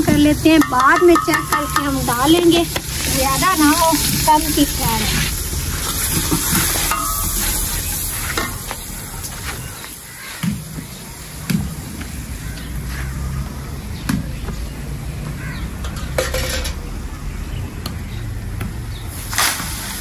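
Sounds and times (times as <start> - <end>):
metal ladle knocking on pot: 0.0 - 2.9, 15.8 - 16.8
onions sizzling in a pot: 0.1 - 11.4.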